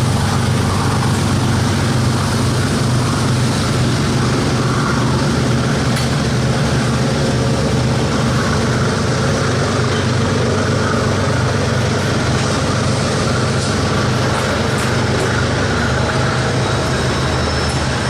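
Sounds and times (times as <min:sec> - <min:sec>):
diesel locomotive engine running: 0:00.0 - 0:18.0.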